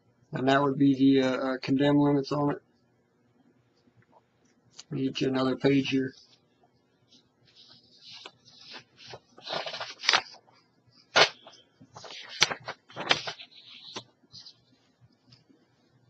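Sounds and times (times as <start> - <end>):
paper pages rustling: 7.1 - 15.5.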